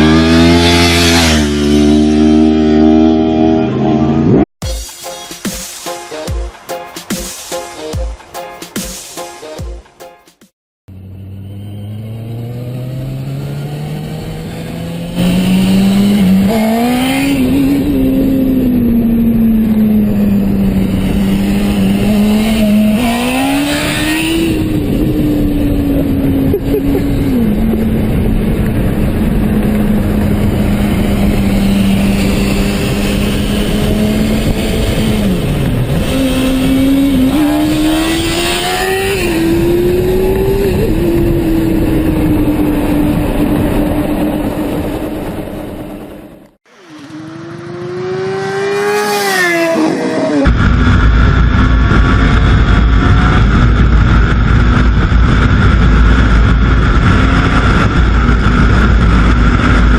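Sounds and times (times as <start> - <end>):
motorcycle engine revving: 0.0 - 4.5, 10.9 - 59.9
wind noise: 12.7 - 46.5, 47.8 - 59.9.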